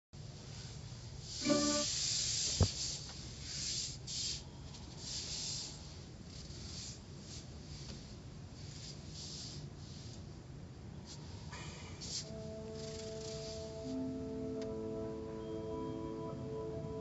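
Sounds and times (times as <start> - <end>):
low steady hum: 0.2 - 3.5, 4.4 - 17.0
water spray hissing: 1.3 - 6.0
short tone: 1.4 - 2.0.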